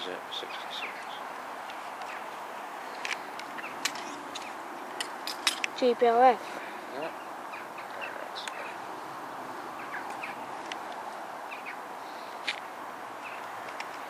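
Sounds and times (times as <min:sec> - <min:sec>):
steady background hiss: 0:00.0 - 0:14.0
bird chirps: 0:00.3 - 0:01.3, 0:02.0 - 0:04.6, 0:06.9 - 0:09.0, 0:09.7 - 0:10.5, 0:11.4 - 0:12.4, 0:13.2 - 0:13.5.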